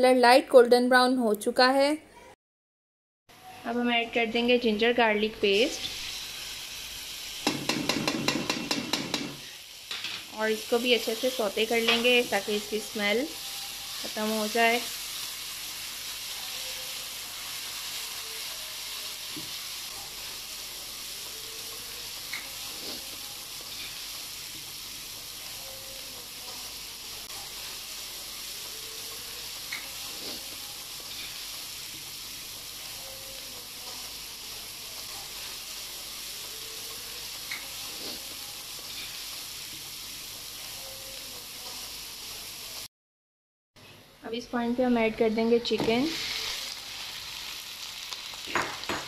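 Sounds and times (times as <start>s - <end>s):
food sizzling in hot oil: 3.4s - 42.9s, 44.8s - 49.0s
spatula scraping and tapping pan: 7.4s - 10.2s.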